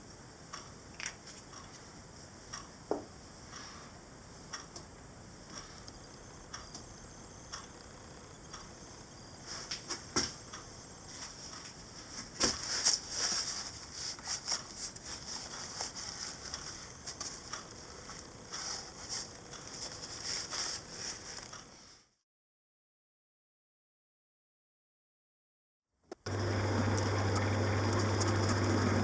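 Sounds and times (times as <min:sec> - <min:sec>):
scratchy hissy scraping: 0:10.8 - 0:22.0.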